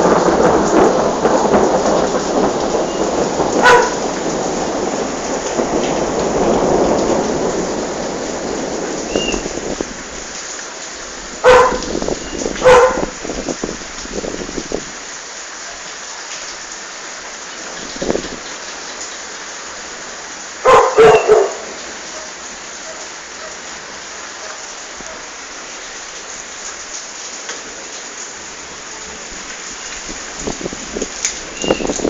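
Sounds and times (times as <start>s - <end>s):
steady rain falling: 0.0s - 32.0s
dog barking: 3.6s - 4.0s, 11.4s - 11.9s, 12.6s - 13.1s, 20.6s - 23.7s, 24.4s - 25.3s.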